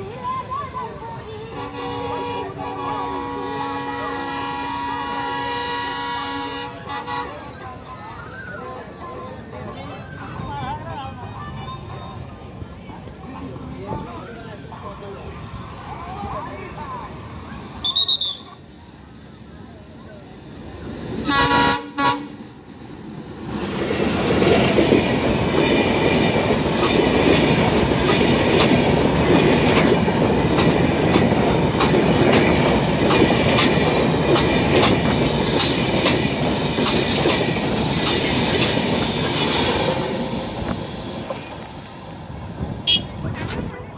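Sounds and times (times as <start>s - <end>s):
train coaches rumbling: 0.0s - 43.9s
wheels clicking over rail joints: 23.3s - 40.0s.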